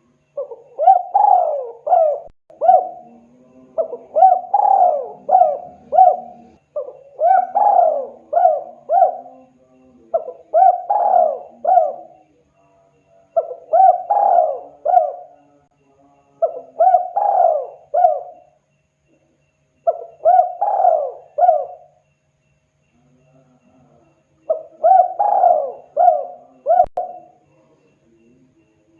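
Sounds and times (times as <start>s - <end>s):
dove cooing: 0.0s - 12.2s, 13.4s - 15.5s, 16.4s - 18.6s, 19.8s - 22.0s, 24.5s - 27.4s.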